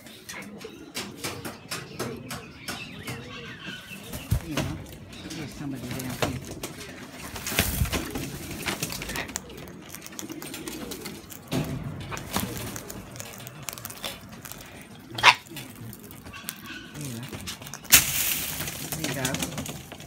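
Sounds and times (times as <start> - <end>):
birds cooing: 0.0 - 20.0.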